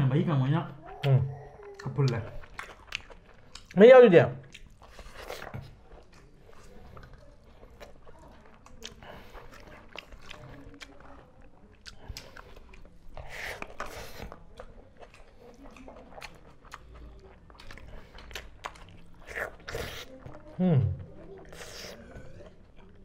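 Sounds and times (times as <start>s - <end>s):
people chewing: 0.0s - 23.0s.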